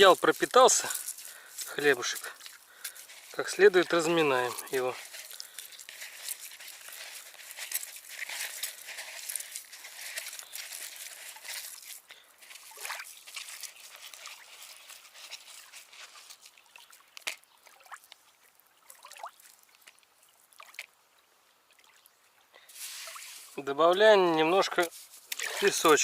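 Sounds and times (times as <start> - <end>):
wet bread squelching: 0.0 - 18.0
water dripping: 0.0 - 22.4, 25.3 - 26.0.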